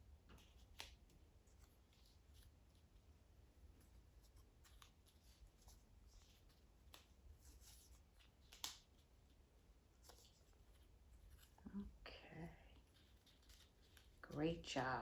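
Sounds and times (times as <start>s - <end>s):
paper rustling: 3.7s - 12.0s, 12.8s - 14.7s.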